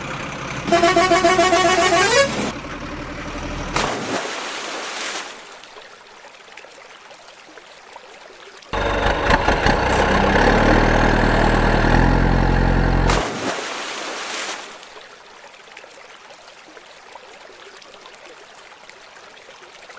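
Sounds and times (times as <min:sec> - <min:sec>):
engine running: 0:00.0 - 0:03.9, 0:08.7 - 0:13.5
stream running: 0:03.7 - 0:19.9.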